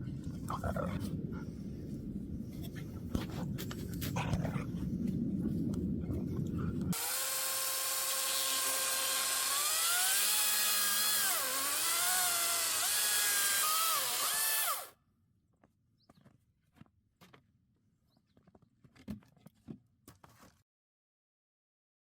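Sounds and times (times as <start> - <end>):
power drill whining: 7.0 - 14.9.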